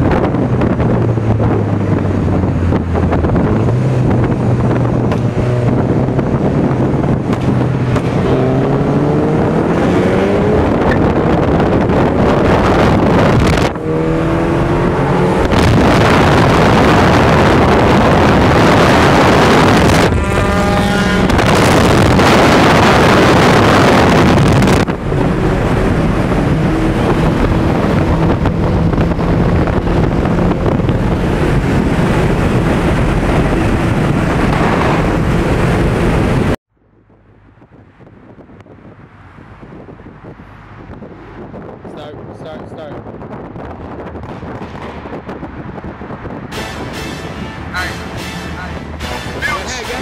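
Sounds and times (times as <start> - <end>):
car engine revving: 0.0 - 36.6, 40.3 - 50.0
wind and road noise: 0.0 - 50.0.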